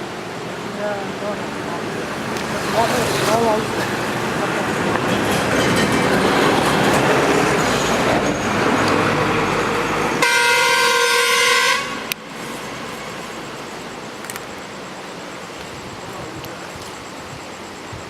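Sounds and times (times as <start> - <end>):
loud rushing noise: 0.0 - 14.1
vehicle horn steady note: 10.2 - 12.1.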